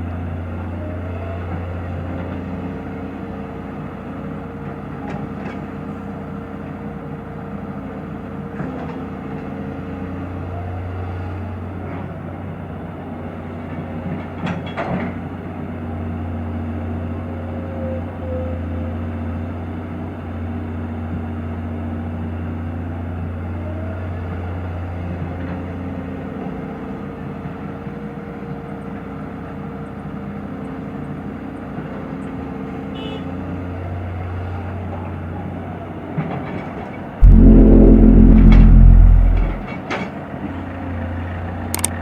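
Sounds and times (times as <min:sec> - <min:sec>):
loud low rumble: 0:37.2 - 0:39.7.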